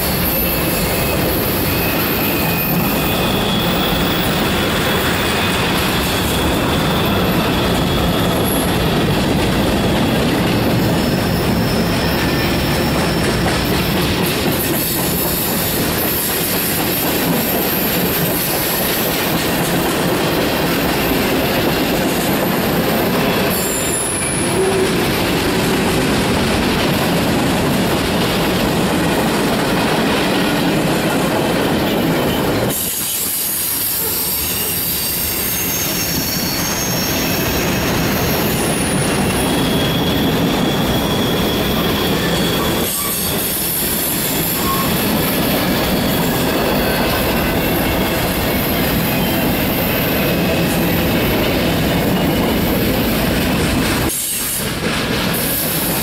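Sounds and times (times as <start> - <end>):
high-pitched wheel squeal: 0.0 - 14.1, 20.7 - 25.4, 31.8 - 53.2
steel wheels rumbling on rail: 0.0 - 56.0.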